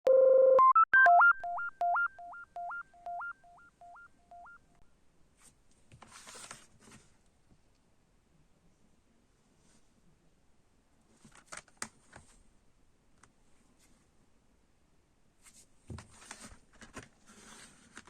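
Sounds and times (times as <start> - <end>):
synthesizer jingle: 0.1 - 4.6.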